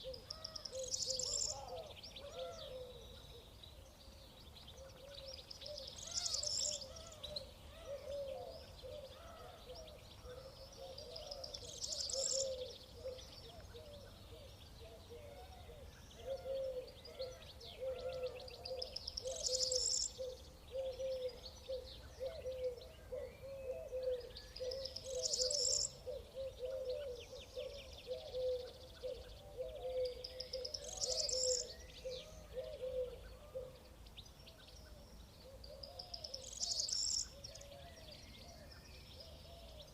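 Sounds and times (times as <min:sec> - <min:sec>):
birds warbling chorus: 0:00.0 - 0:03.2, 0:05.5 - 0:14.0, 0:16.2 - 0:34.0.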